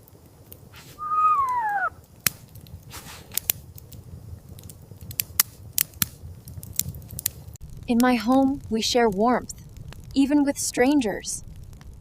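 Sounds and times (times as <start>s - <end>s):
whine falling in pitch: 1.0s - 2.0s
sharp crunching clicks: 1.5s - 8.0s
low rumble: 7.6s - 12.0s.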